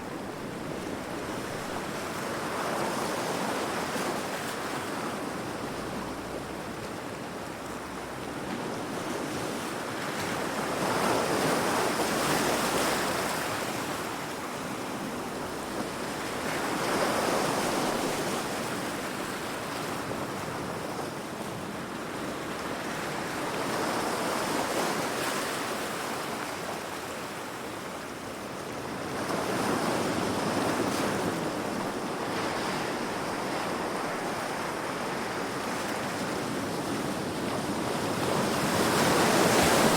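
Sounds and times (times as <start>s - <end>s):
wind: 0.0s - 39.9s
ocean waves crashing on rocks: 29.1s - 39.9s.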